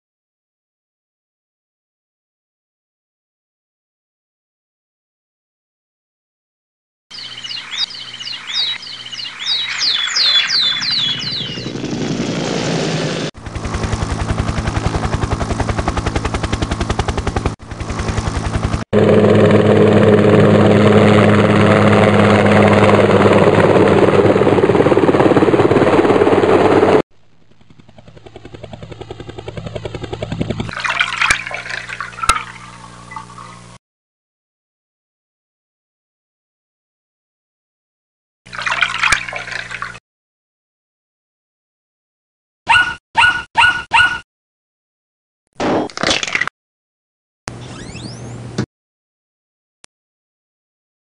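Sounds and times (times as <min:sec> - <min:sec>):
high falling chirps: 0:07.1 - 0:11.8
helicopter rotor chop: 0:07.2 - 0:33.8.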